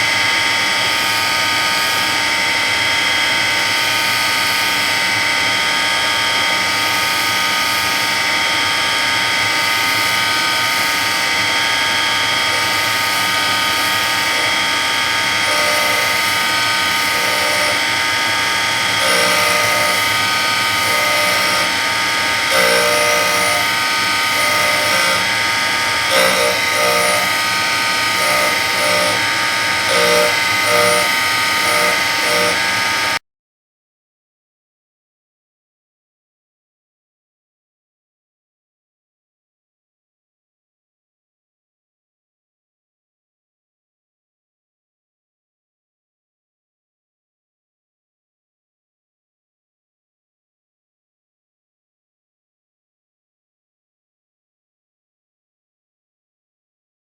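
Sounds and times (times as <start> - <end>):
surface grinder whining: 6.0 - 33.2
low pulsing hum: 26.1 - 32.6.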